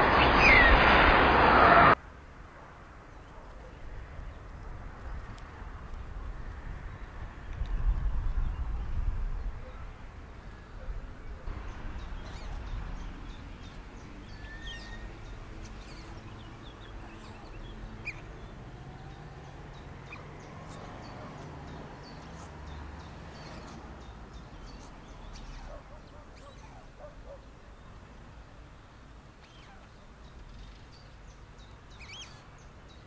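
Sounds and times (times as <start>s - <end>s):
bird chirps: 12.0s - 27.5s, 29.4s - 33.0s.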